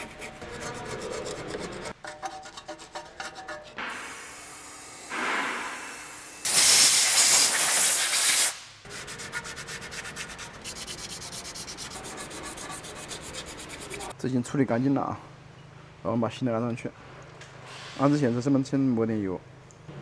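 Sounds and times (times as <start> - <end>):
scrubbing rust off metal: 0.0 - 3.8, 9.0 - 14.1
compressed air hiss: 4.0 - 8.8.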